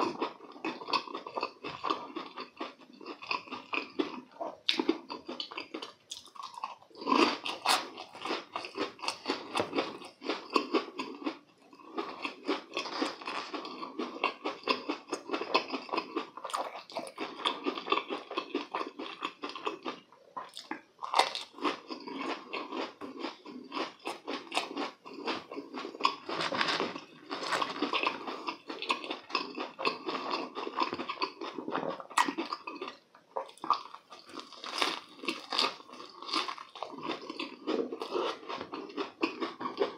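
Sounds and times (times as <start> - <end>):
crunching and chewing fried food: 0.0 - 39.9.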